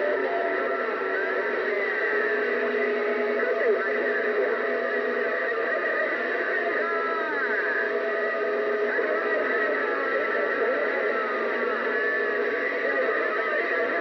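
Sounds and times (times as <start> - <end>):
faint garbled radio voices: 0.0 - 14.0
radio static hiss: 0.0 - 14.0.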